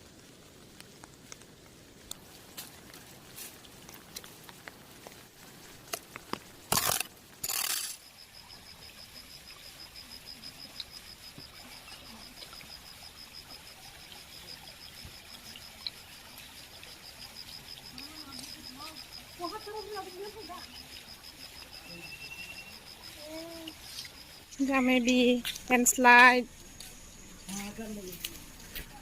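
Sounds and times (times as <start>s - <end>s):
rain water dripping: 0.0s - 29.0s
rapid high-pitched chirping: 18.0s - 27.8s.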